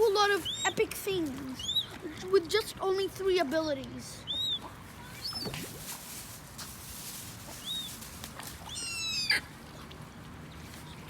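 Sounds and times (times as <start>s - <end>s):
seagulls calling: 8.6s - 9.5s.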